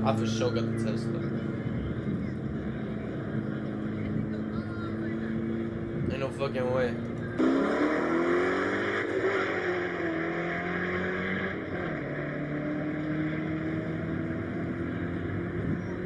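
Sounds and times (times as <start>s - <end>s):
car engine accelerating hard: 0.0s - 6.4s, 7.0s - 16.0s.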